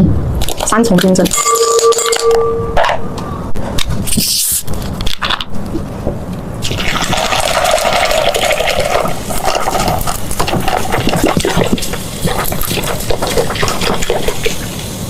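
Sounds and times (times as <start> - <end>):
cola pouring and fizzing: 6.6 - 14.8.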